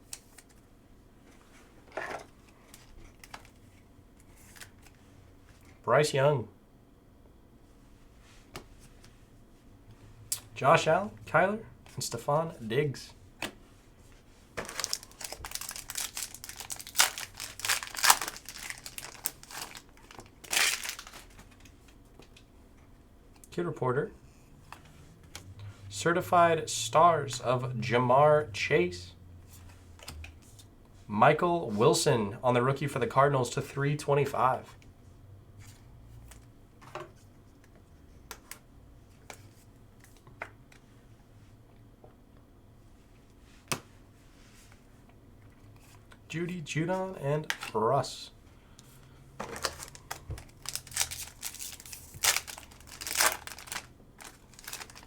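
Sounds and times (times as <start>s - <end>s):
foil wrapper crinkling: 14.6s - 21.6s, 49.5s - 55.0s
trading cards clicking and rustling: 14.6s - 22.4s, 49.4s - 55.0s
cards being handled: 49.4s - 55.0s.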